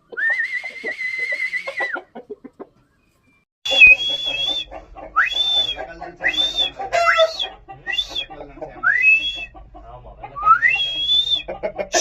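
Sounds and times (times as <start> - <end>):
chickens clucking: 0.0 - 12.0
person whistling: 0.1 - 2.1, 3.7 - 8.2, 8.8 - 9.5, 10.4 - 11.5.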